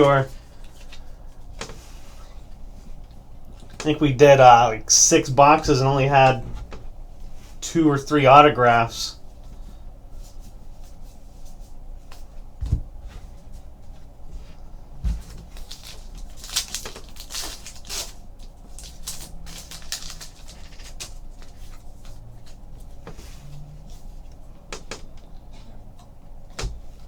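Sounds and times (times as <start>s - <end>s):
dull thumps: 12.6s - 13.2s.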